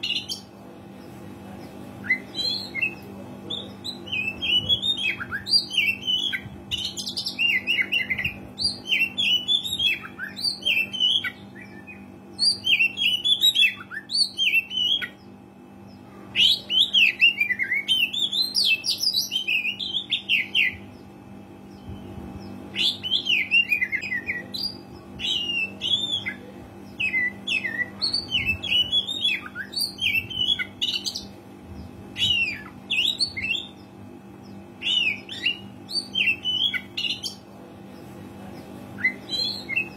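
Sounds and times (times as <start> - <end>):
faint low hum: 0.0 - 39.9
magpie-robin singing whistles: 22.7 - 26.4, 27.0 - 31.2, 32.2 - 33.8, 34.8 - 37.4.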